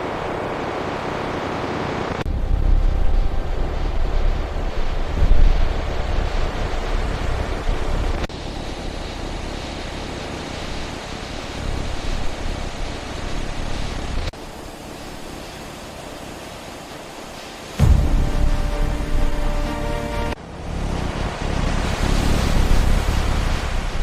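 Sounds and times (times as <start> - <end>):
fighter jet roar: 17.8 - 24.0.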